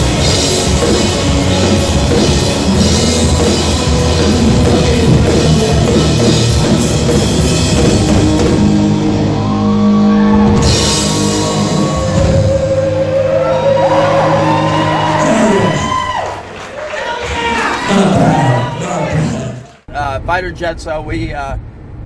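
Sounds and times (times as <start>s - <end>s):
cymbals: 0.0s - 16.2s
distorted electric guitar: 0.0s - 16.2s
drum kit: 0.0s - 16.6s.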